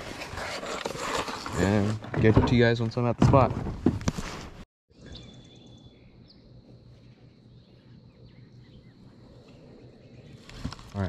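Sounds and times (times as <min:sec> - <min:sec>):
outdoor ambience: 0:00.0 - 0:11.0
distant bird calls: 0:04.9 - 0:11.0.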